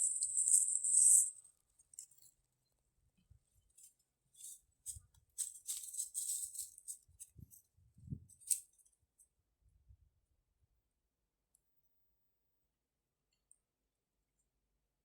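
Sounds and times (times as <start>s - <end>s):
rustling of dry leaves and twigs: 3.8s - 7.6s.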